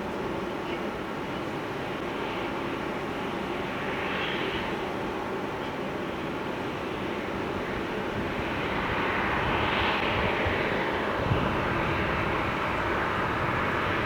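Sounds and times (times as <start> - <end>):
jet engines rushing: 7.8 - 14.0
gusty rumble: 9.3 - 14.0.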